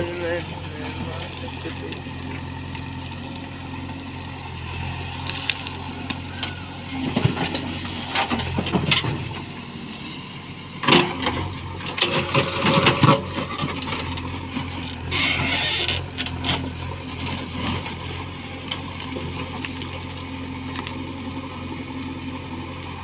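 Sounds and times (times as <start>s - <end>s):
diesel engine running: 0.0s - 23.0s
loud metal clanks and crunches: 6.3s - 9.5s, 10.8s - 18.0s.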